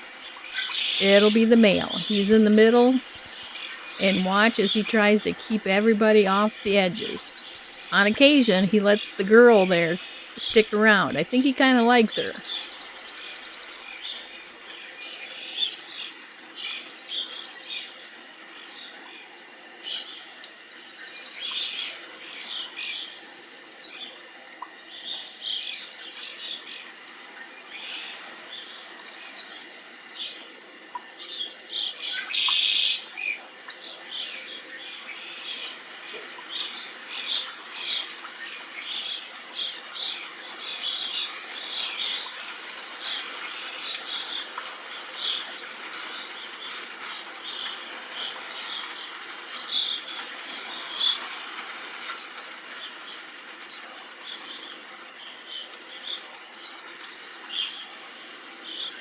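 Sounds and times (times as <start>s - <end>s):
songbirds chirping: 0.7s - 14.2s.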